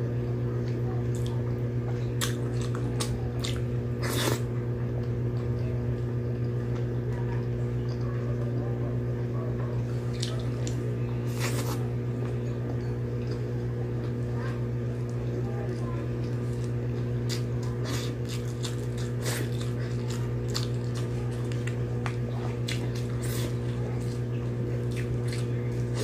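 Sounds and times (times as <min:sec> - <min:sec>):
steady low hum: 0:00.0 - 0:26.0
wet chewing and smacks: 0:10.1 - 0:13.5, 0:16.2 - 0:26.0.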